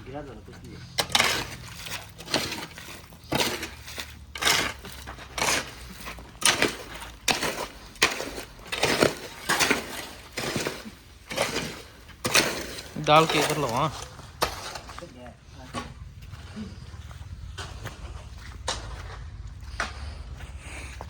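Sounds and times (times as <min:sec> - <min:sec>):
hand tool rasping on timber: 0:00.8 - 0:13.8.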